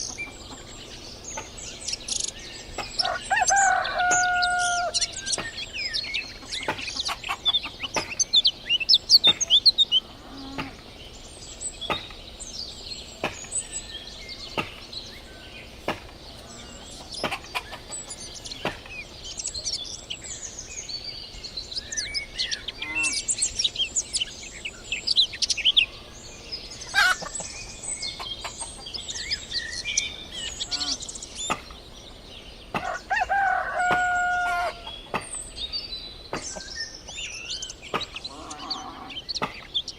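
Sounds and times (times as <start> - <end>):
small birds chirping: 0.0 - 39.9
rooster crowing: 3.0 - 5.2, 32.8 - 35.0.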